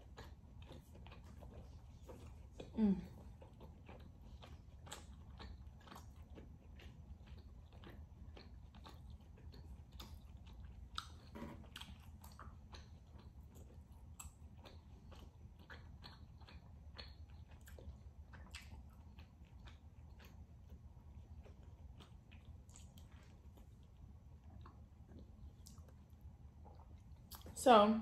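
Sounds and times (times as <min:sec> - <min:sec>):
wet chewing mouth clicks: 0:00.0 - 0:27.6.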